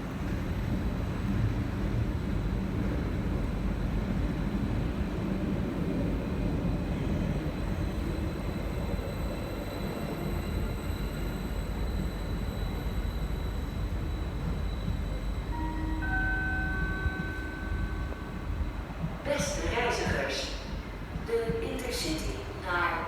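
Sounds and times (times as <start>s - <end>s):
train low rumble: 0.0s - 23.0s
faint high whine: 12.4s - 20.4s.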